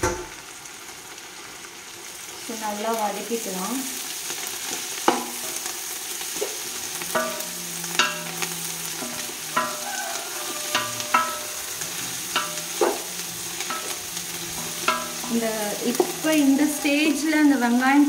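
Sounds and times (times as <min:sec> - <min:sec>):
onions sizzling in oil: 0:00.2 - 0:18.0
spatula clanking on pot: 0:05.1 - 0:05.6, 0:07.1 - 0:17.2.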